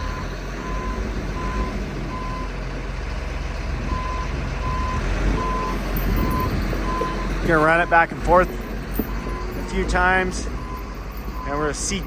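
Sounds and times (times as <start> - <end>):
diesel engine running: 0.0 - 12.0
backup alarm beeping: 3.9 - 8.1.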